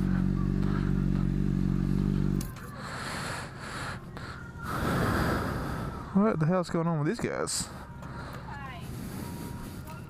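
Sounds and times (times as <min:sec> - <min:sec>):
motorcycle engine idling: 0:00.0 - 0:02.7.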